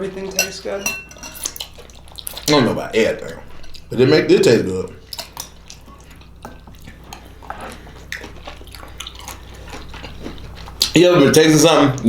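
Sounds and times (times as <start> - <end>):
low steady hum: 0.0 - 12.0
cutlery tapping on plates: 0.3 - 1.6
chewing: 1.2 - 12.0.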